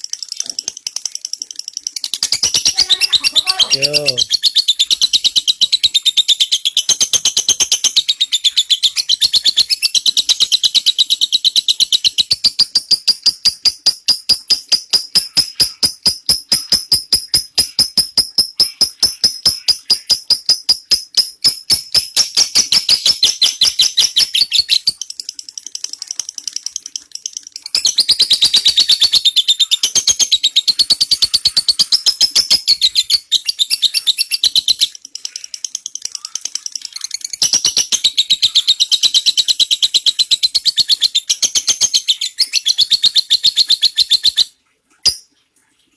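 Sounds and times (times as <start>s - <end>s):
lovebird shrill chattering: 0.2s - 44.5s.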